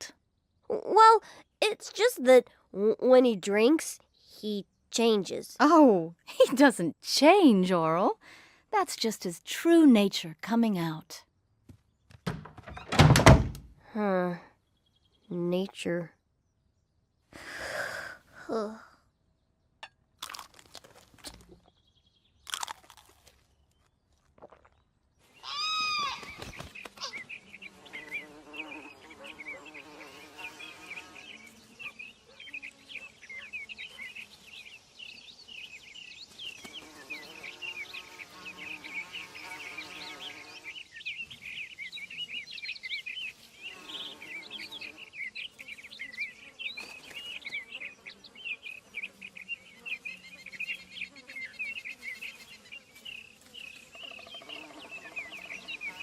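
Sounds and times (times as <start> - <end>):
birds chirping: 0.0 - 20.2, 21.1 - 56.0
loud bird call: 25.4 - 34.3.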